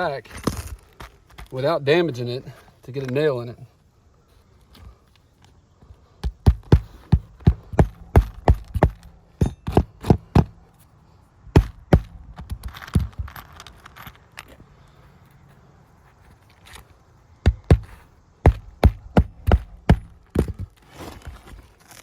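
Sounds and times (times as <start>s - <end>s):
hammer striking roofing nails: 6.2s - 10.7s, 11.5s - 13.4s, 17.4s - 20.8s.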